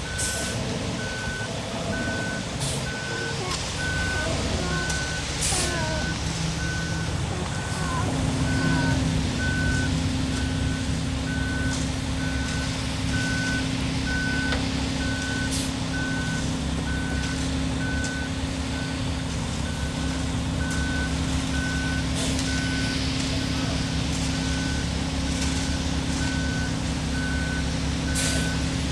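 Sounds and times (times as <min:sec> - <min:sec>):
backup alarm beeping: 0:00.0 - 0:19.0
diesel engine running: 0:00.0 - 0:28.9.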